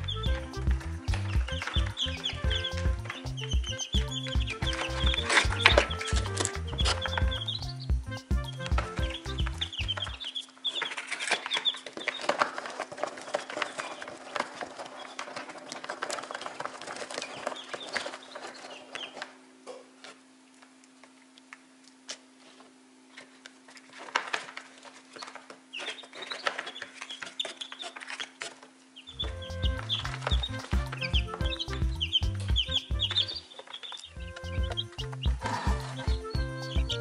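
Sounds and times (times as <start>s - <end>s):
chicks peeping: 0.0s - 19.4s, 23.9s - 37.0s
faint steady hum: 0.0s - 37.0s
straw rustling and crackling: 0.0s - 37.0s.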